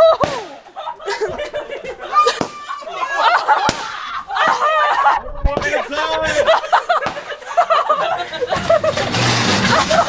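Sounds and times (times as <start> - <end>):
excited voices: 0.0 - 10.0
people laughing: 0.0 - 10.0
firework bangs: 0.1 - 0.7, 2.3 - 2.7, 3.6 - 4.0, 6.9 - 7.6, 8.5 - 10.0.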